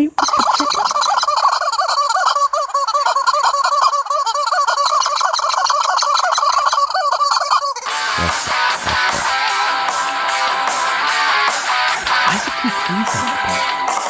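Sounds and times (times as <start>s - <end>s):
turkeys gobbling: 0.1s - 9.6s.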